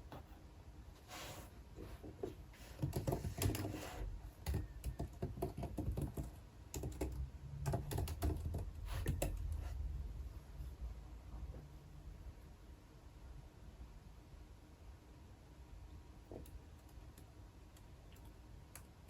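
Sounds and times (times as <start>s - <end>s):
typing on computer keyboard: 2.8s - 3.8s, 4.4s - 9.5s.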